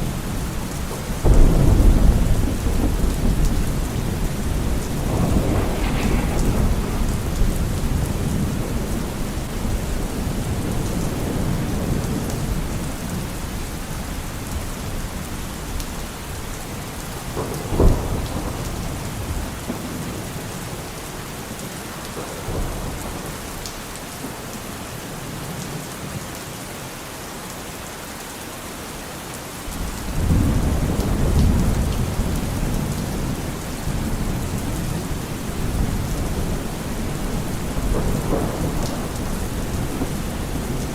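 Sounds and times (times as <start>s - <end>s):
rolling thunder: 0.0s - 13.6s, 14.8s - 21.0s, 29.7s - 40.9s
steady rain: 0.0s - 40.9s
sharp thunder crack: 1.2s - 11.9s, 33.9s - 40.9s.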